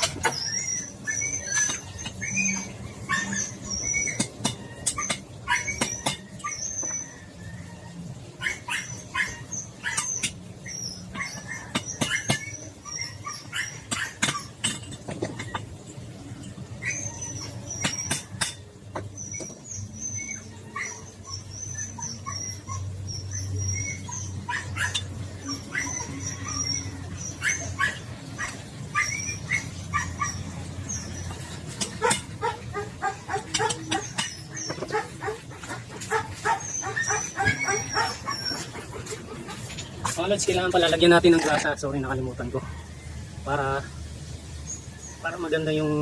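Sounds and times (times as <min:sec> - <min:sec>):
high bird chirping: 0:00.0 - 0:07.7, 0:16.3 - 0:42.2
dog barking: 0:08.4 - 0:10.2, 0:24.1 - 0:26.8, 0:27.4 - 0:30.4, 0:32.0 - 0:38.6.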